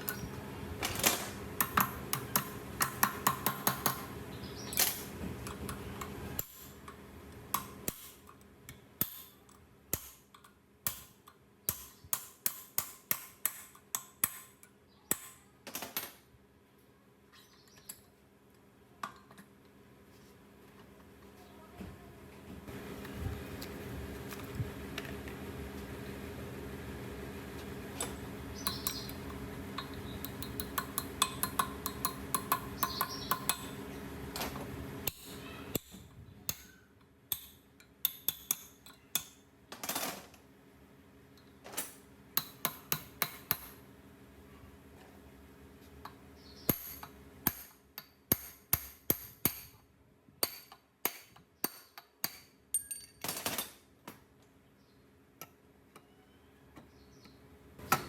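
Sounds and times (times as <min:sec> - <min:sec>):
tools tapping metal: 0:01.6 - 0:04.1, 0:04.8 - 0:16.2, 0:28.0 - 0:33.8, 0:34.4 - 0:40.2, 0:41.4 - 0:43.8, 0:50.4 - 0:53.8.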